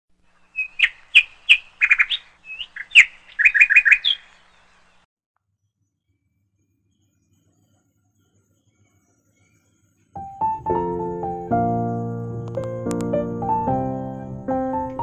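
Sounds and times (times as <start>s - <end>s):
songbird chirping: 0.2s - 5.1s, 5.8s - 15.0s.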